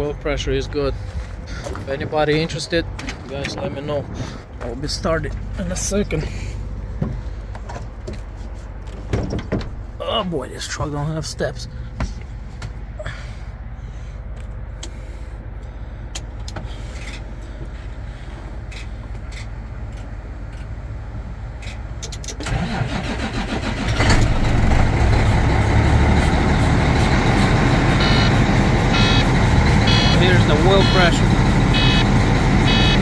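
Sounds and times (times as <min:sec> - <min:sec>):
diesel engine idling: 0:00.0 - 0:09.0, 0:09.7 - 0:33.0
short beeps: 0:28.0 - 0:32.1, 0:32.7 - 0:33.0.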